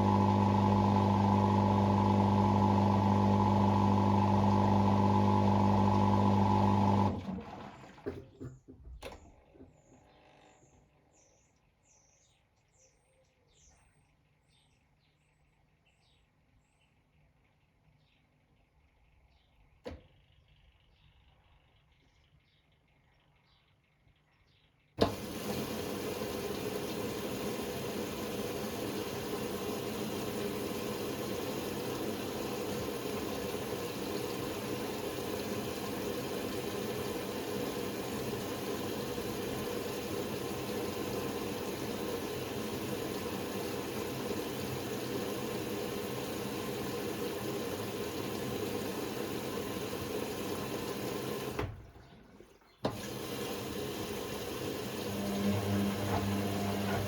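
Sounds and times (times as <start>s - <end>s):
washing machine water rushing: 0.0s - 8.5s, 25.0s - 57.0s
washing machine click: 50.5s - 57.0s.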